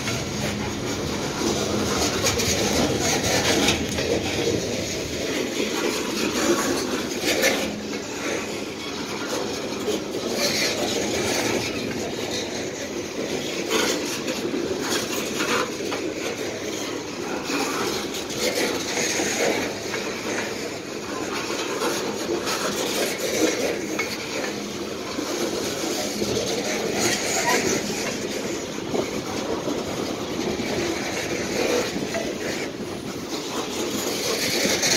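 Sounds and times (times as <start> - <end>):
freight train wheels rumbling on rail: 0.0 - 34.9.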